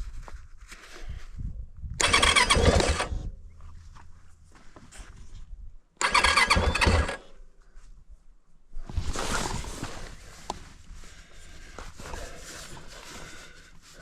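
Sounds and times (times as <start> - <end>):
starter squeal: 2.0 - 3.1, 6.0 - 7.2
motorcycle starter cranking: 2.0 - 3.2, 6.0 - 7.3.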